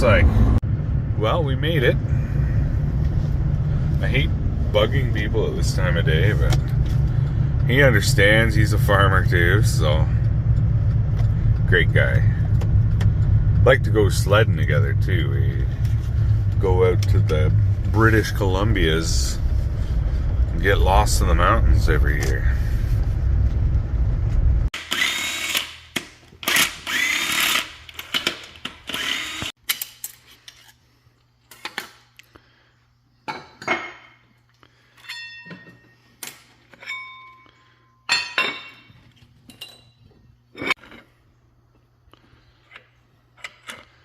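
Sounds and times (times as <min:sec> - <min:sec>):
power tool whirring: 0:24.8 - 0:25.8, 0:26.4 - 0:29.6.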